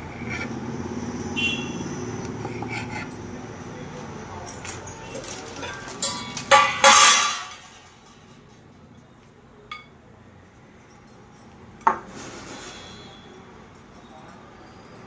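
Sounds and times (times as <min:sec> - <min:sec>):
dishes and utensils clinking: 0:04.0 - 0:10.0, 0:11.8 - 0:14.6.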